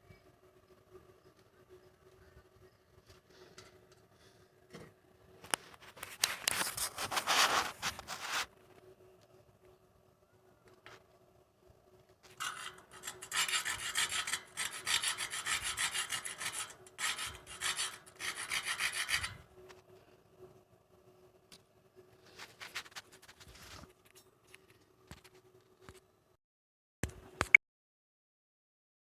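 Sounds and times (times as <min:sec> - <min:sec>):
rapid rasping scrapes: 0:06.5 - 0:08.5, 0:12.4 - 0:19.5.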